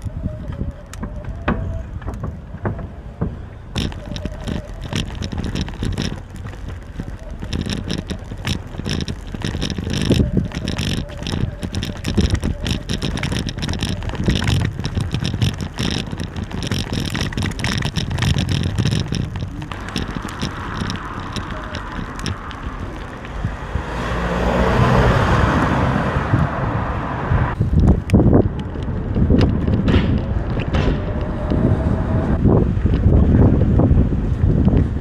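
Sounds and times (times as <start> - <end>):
rattling clicks and knocks: 0.0 - 23.4, 27.8 - 31.6
bike rolling noise: 0.0 - 35.0
wind noise: 0.0 - 35.0.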